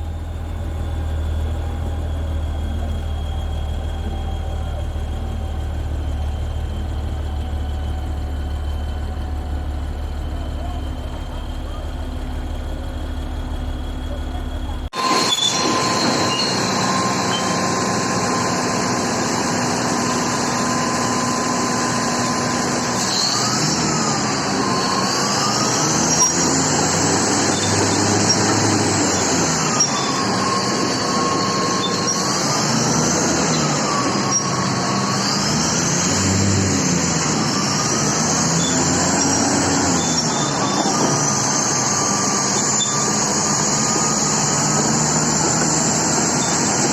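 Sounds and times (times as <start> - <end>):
bulldozer running: 0.0 - 46.9
high metallic squeal: 0.8 - 46.9.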